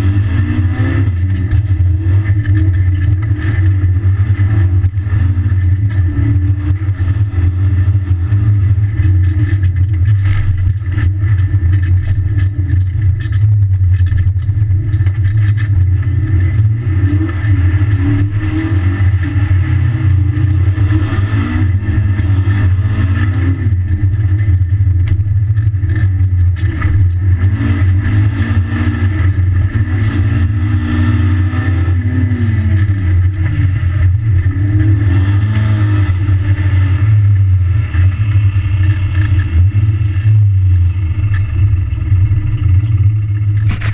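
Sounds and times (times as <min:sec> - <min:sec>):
car engine accelerating: 0:00.0 - 0:43.9
loud constant low drone: 0:00.0 - 0:43.9.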